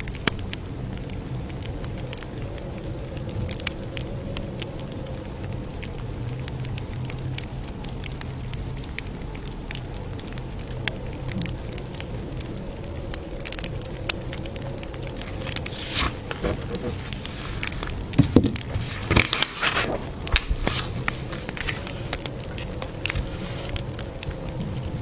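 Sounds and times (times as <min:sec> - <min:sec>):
rustles: 0:15.1 - 0:24.1.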